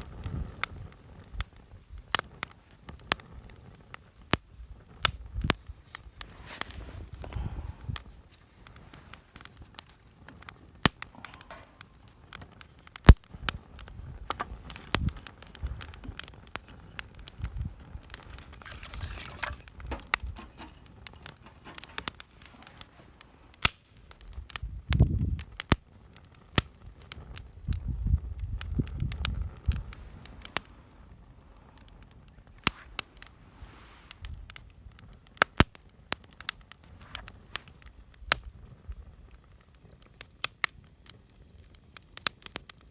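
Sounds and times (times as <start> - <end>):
campfire crackling and popping: 0.0 - 42.9.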